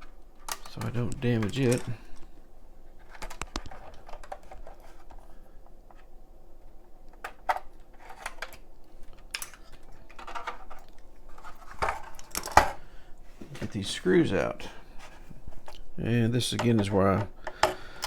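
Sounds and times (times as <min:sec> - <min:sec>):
small parts clicking and scraping: 0:02.9 - 0:06.1, 0:07.1 - 0:12.8.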